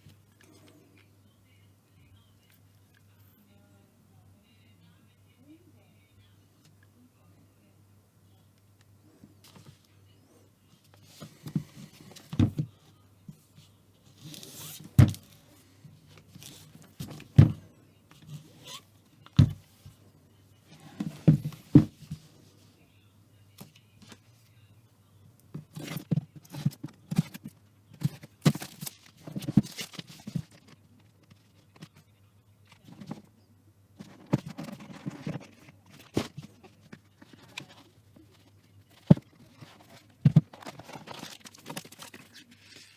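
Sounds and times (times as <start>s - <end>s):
packaging knocks and thuds: 11.4s - 12.7s, 14.9s - 15.4s, 16.3s - 17.7s, 19.4s - 19.8s, 20.9s - 22.2s, 25.6s - 30.7s, 39.0s - 42.2s.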